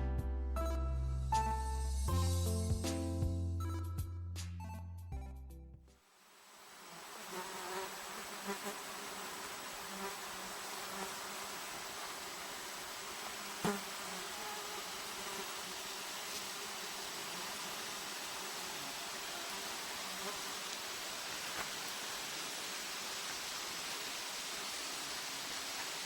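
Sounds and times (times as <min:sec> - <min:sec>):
background hiss: 0:05.9 - 0:26.0
flying insects buzzing: 0:06.6 - 0:26.0.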